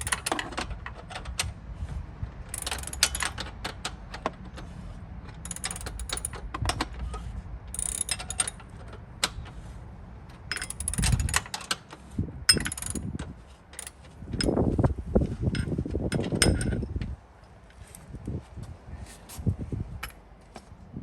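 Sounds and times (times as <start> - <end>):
metallic clinks of hand tools: 2.6 - 3.5, 5.4 - 6.4, 7.8 - 8.6, 10.5 - 11.5.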